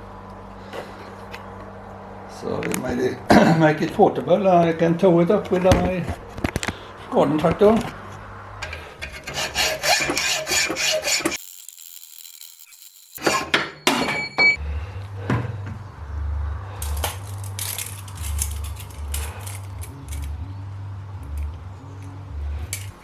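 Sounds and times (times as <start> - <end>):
metal parts clattering on wood: 17.0 - 20.3.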